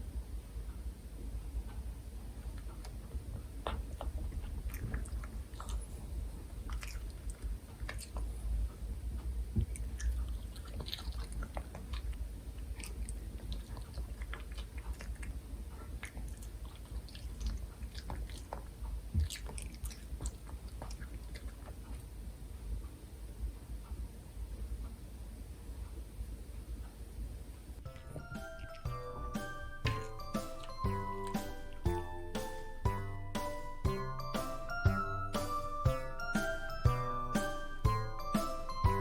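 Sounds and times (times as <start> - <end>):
dog chewing food: 3.6 - 8.6, 9.5 - 22.2.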